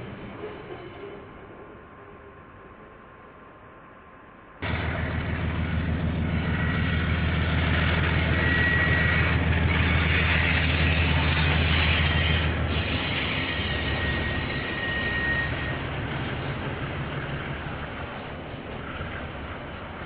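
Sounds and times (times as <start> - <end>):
diesel locomotive engine rumble: 4.3 - 20.0
rushing noise: 4.6 - 20.0.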